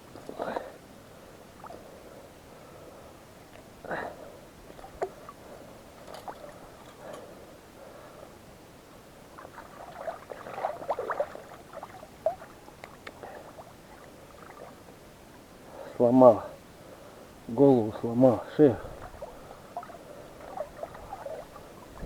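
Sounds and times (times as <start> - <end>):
water sounds: 9.2 - 15.6, 18.4 - 22.0.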